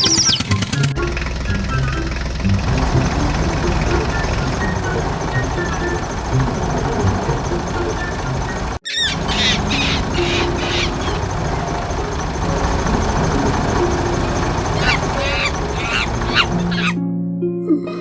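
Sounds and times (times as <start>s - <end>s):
high squeaky chirps: 0.0s - 2.3s, 7.7s - 11.4s, 14.8s - 17.0s
engine-like rumble: 0.0s - 16.9s.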